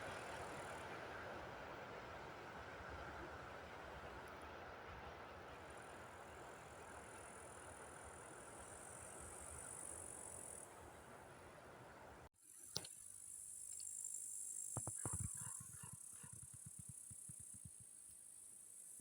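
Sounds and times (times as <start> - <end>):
low distant rumble and hiss: 0.0 - 12.3
insect chirring: 12.5 - 19.0.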